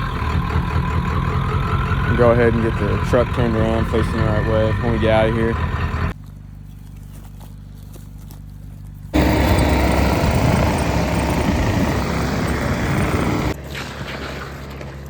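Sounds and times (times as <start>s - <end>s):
loud rumbling engine: 0.0s - 6.2s, 9.2s - 15.0s
vehicle engine low hum: 0.0s - 15.0s.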